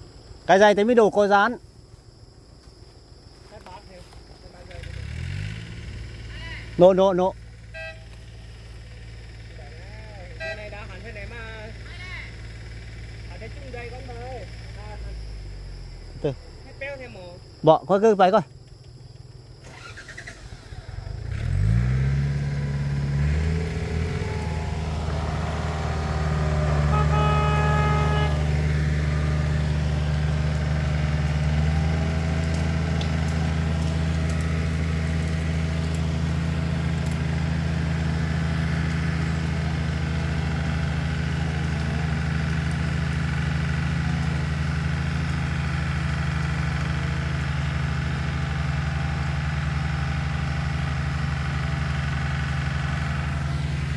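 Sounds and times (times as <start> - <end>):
tractor diesel engine revving: 4.7 - 16.4, 19.6 - 53.9
high whine: 22.6 - 31.4.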